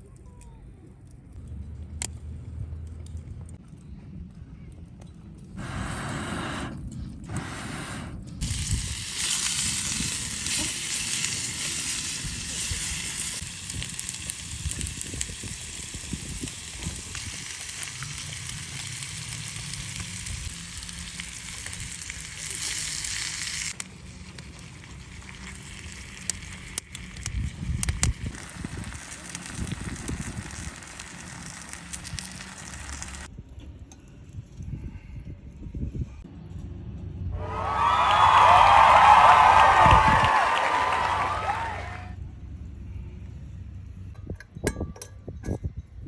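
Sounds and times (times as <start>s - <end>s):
food sizzling over campfire: 8.4s - 33.3s.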